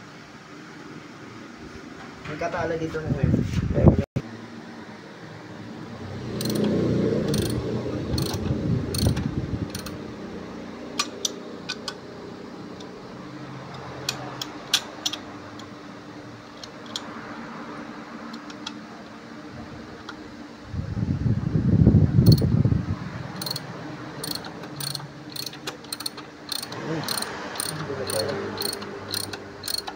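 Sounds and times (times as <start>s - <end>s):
sharp metallic clicks: 6.4s - 10.0s, 23.4s - 23.6s, 24.2s - 29.9s
evenly spaced clicks: 24.2s - 29.9s.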